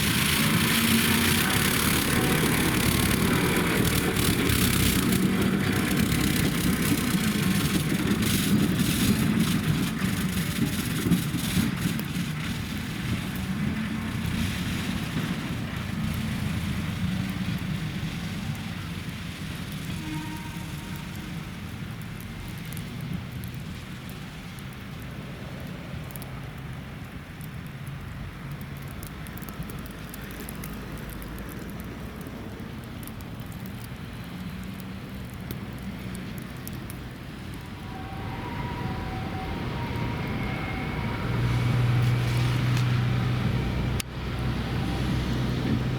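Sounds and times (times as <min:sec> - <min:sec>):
low motor hum: 0:00.0 - 0:09.4, 0:37.6 - 0:45.9
rotating brushes rushing: 0:00.0 - 0:11.7
snow-sweeper tram brushes rumbling: 0:00.0 - 0:26.2, 0:28.7 - 0:45.9.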